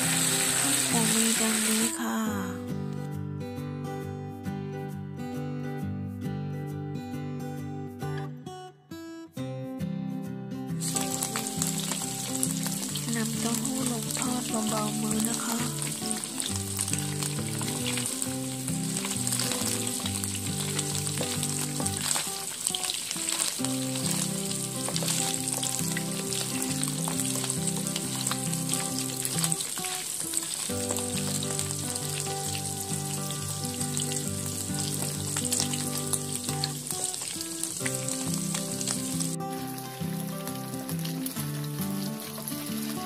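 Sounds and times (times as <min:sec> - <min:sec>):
tofu sizzling in hot oil: 0:00.0 - 0:02.0, 0:10.8 - 0:43.0
background music: 0:00.0 - 0:43.0.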